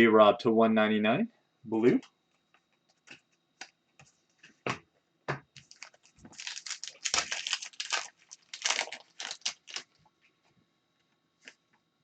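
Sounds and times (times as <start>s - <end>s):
crinkly plastic rustling: 5.6s - 10.4s.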